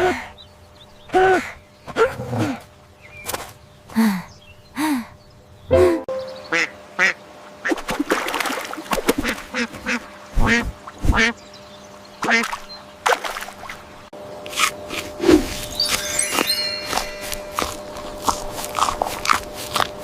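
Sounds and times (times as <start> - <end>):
ducks quacking: 6.4 - 7.8, 9.1 - 11.4, 12.2 - 12.6.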